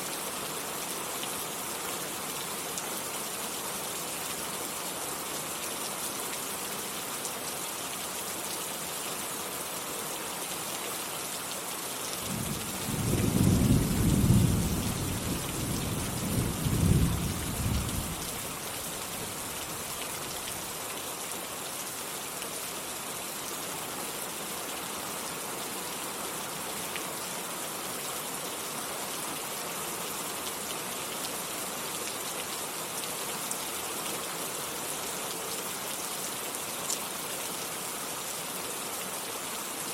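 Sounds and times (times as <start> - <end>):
steady rain falling: 0.0 - 39.9
thunder rumbling: 12.3 - 18.2.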